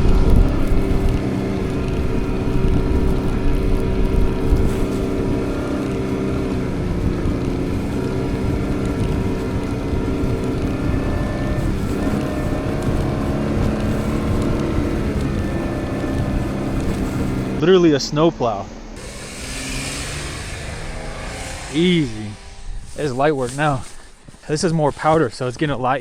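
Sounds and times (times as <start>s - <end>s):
vehicle engine running under load: 0.0s - 25.2s.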